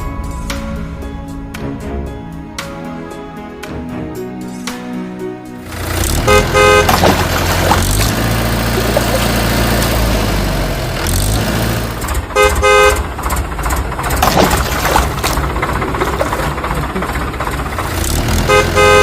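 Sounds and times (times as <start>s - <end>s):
low engine rumble: 5.6s - 19.0s
vehicle horn beeps: 6.1s - 8.0s, 12.4s - 13.1s, 18.4s - 19.0s.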